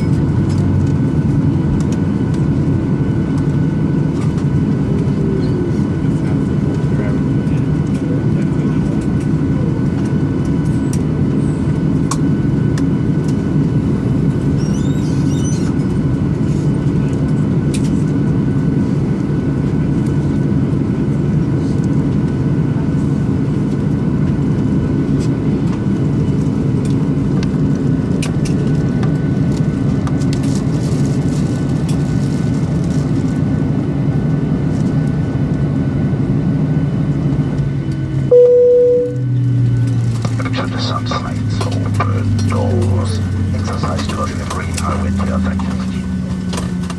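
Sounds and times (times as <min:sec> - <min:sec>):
aircraft cabin rumble: 0:00.0 - 0:46.9
brief tone: 0:38.3 - 0:39.6.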